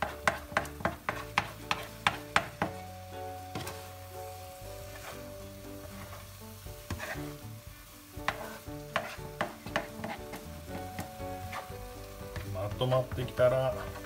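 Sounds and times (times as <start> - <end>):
spatula scraping a pan: 0.0 - 2.8, 4.6 - 12.5
spatula knocking the pan: 0.0 - 2.9, 6.8 - 7.2, 8.2 - 11.6
egg sizzling in a frying pan: 0.0 - 14.0.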